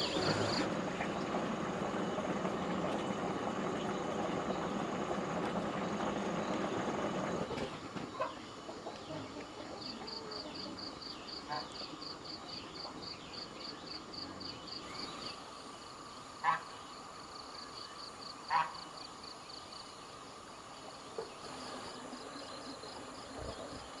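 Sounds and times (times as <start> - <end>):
birds chirping: 0.0 - 7.4
motor running: 0.0 - 7.4.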